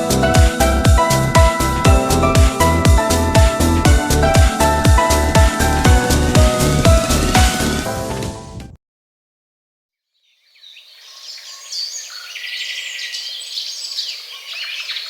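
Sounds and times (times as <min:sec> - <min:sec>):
music: 0:00.0 - 0:08.8
birds chirping and singing: 0:10.5 - 0:15.0.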